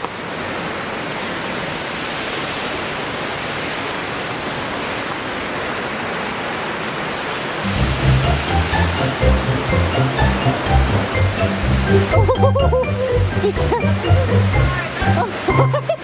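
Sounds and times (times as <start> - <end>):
waterfall rushing: 0.0 - 16.0
music with heavy beat: 7.7 - 15.3.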